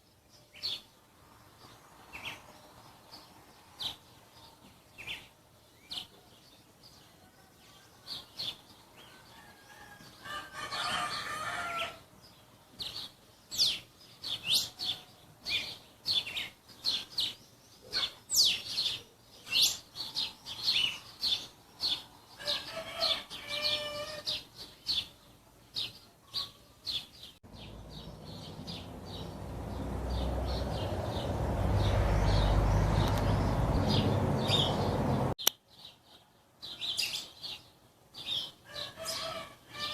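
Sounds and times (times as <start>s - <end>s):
songbirds chirping: 0.0s - 39.9s
rooster crowing: 9.1s - 12.0s, 22.4s - 24.4s, 38.7s - 39.9s.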